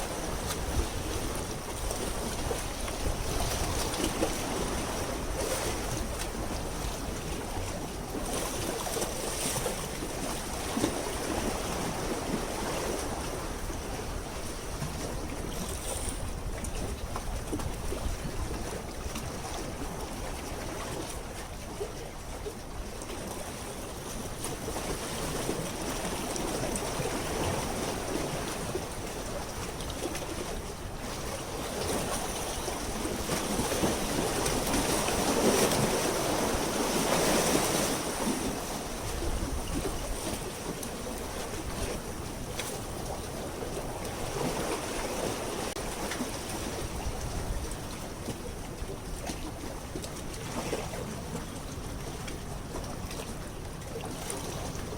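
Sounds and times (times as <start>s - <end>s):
seawater lapping: 0.0s - 54.9s
wind buffeting microphone: 26.6s - 53.4s.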